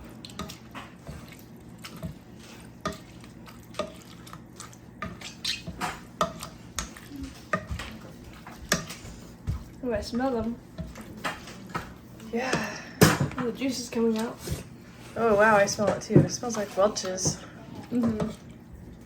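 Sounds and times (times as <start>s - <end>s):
wet squishing of grapes: 0.0s - 12.8s.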